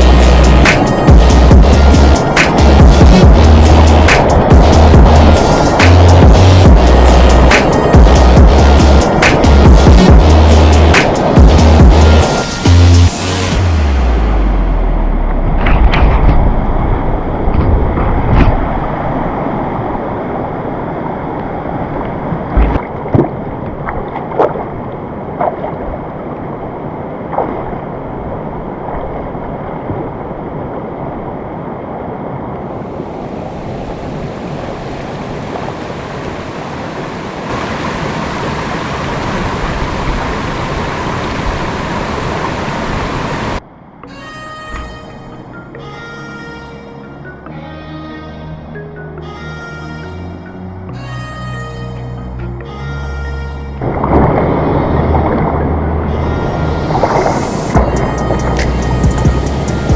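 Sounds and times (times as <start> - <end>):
waterfall rushing: 0.0 - 15.2, 27.9 - 43.6, 53.8 - 59.9
knocks and bumps: 15.4 - 18.8.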